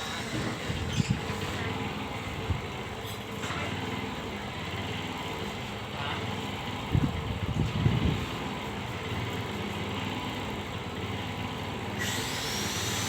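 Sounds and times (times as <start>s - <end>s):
small engine running: 0.0s - 1.8s, 7.5s - 13.0s.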